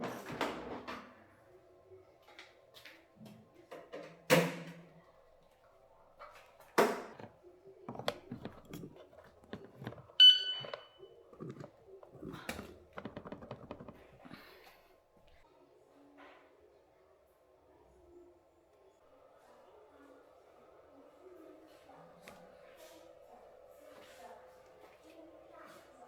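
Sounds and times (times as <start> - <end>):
objects knocking and thudding: 6.7 - 15.4
short electronic beep: 10.2 - 11.0.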